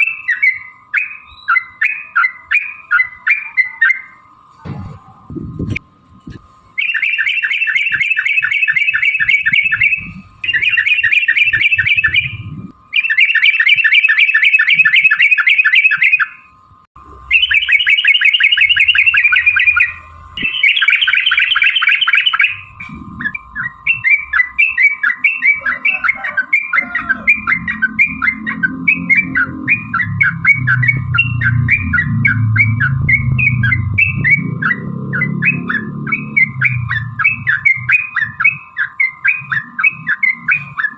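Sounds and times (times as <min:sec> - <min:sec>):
bulbul rattling song: 0:00.0 - 0:04.4, 0:06.6 - 0:40.9
bird chirps: 0:00.0 - 0:05.3, 0:06.7 - 0:40.9
low rumble: 0:11.4 - 0:12.9, 0:18.6 - 0:20.6, 0:22.5 - 0:24.6, 0:26.8 - 0:38.8.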